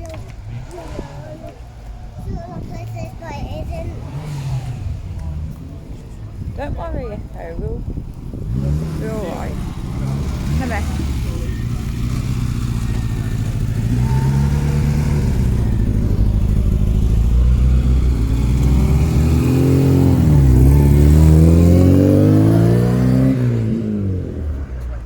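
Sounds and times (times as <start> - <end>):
vehicle engine revving: 0.0 - 25.0.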